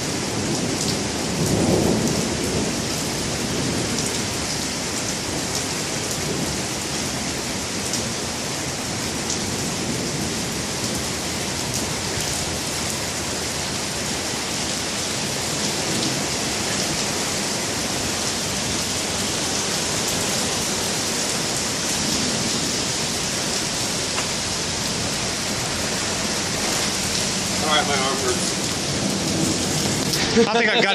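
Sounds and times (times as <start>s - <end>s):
steady rain: 0.0s - 30.9s
raindrop ticks: 24.1s - 24.4s.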